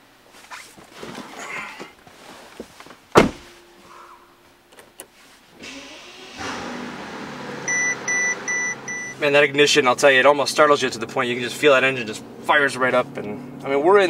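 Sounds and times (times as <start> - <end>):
car engine idling: 6.0 - 14.0
warning chime beeping: 7.7 - 9.2.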